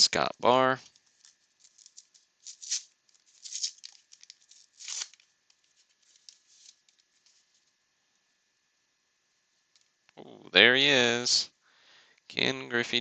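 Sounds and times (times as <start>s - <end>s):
wrapper tearing: 0.8s - 7.7s
wrapper crinkling: 0.8s - 7.8s.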